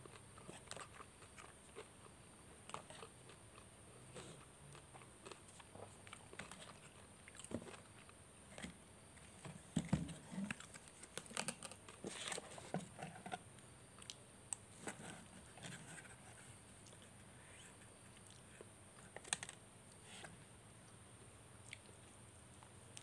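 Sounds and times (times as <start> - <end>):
chewing and biting mouth sounds: 0.0 - 8.2
food handling crackles: 19.1 - 19.6.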